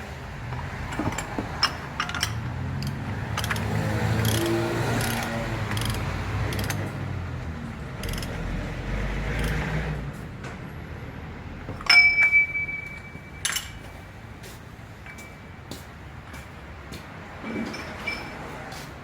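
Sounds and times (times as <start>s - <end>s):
metallic clink: 11.8s - 14.0s, 15.0s - 15.5s, 17.5s - 18.5s.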